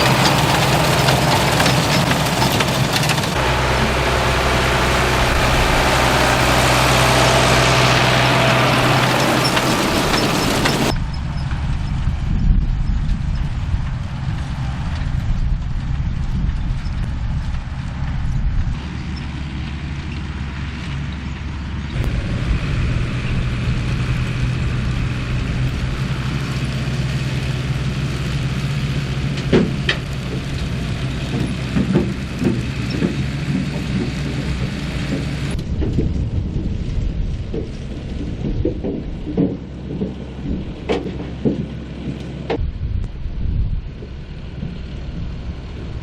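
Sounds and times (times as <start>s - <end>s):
sharp knocks and rattles: 0.0s - 11.6s, 29.2s - 42.6s
tractor engine running: 0.0s - 46.0s.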